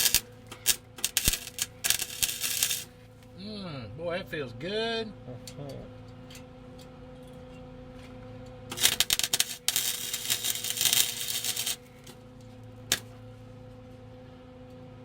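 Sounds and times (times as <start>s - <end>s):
welding arc crackling: 0.0s - 2.9s, 8.7s - 12.1s.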